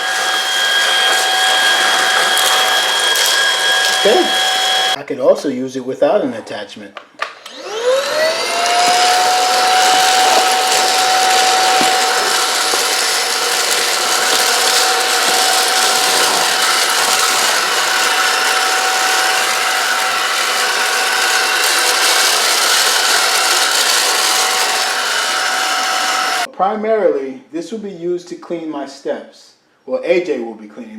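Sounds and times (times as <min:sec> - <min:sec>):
vacuum motor whining and hissing: 0:00.0 - 0:05.0, 0:07.4 - 0:26.5.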